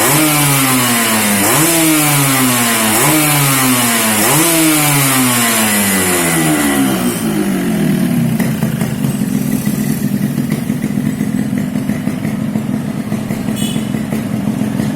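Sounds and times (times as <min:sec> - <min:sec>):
motorcycle engine revs falling: 0:00.0 - 0:14.9
motorcycle engine idling: 0:05.0 - 0:14.9
faint high exhaust whistle: 0:13.4 - 0:14.2.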